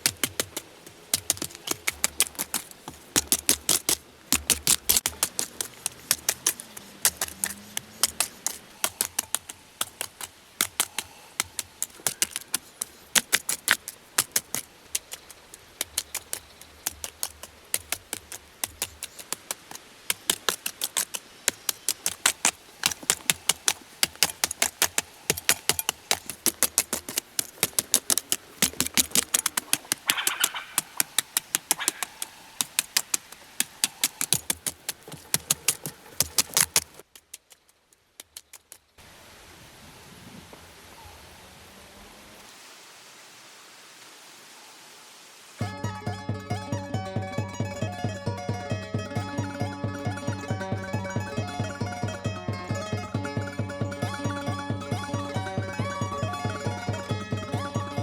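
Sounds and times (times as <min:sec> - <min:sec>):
quick sharp knocks and taps: 0:00.0 - 0:37.1.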